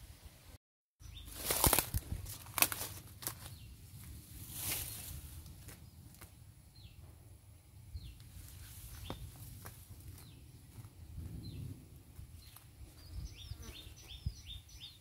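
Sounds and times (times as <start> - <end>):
leaves snapping and rustling: 1.3 - 3.6.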